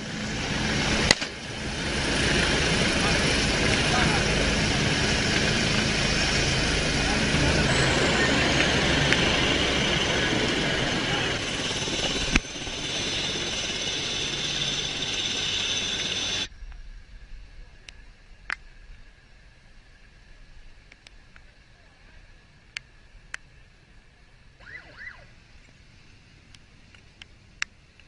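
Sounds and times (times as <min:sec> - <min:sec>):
engine and wind noise: 0:00.0 - 0:28.0
sharp crack: 0:01.0 - 0:01.4.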